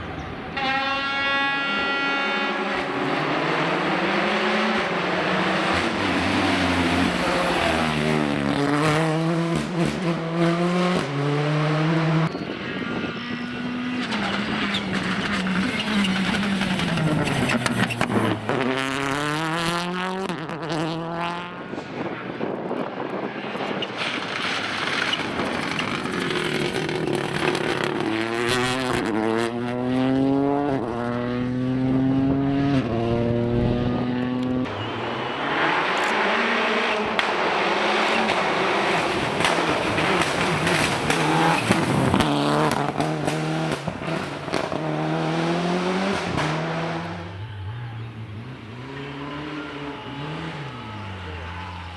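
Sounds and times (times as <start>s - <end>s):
rally car engine accelerating: 1.0s - 21.6s, 24.0s - 51.9s
tyre noise: 23.6s - 29.2s.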